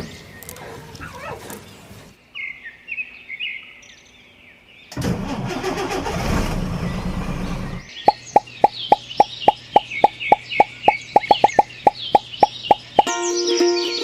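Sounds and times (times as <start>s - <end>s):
birds chirping: 6.9s - 14.0s.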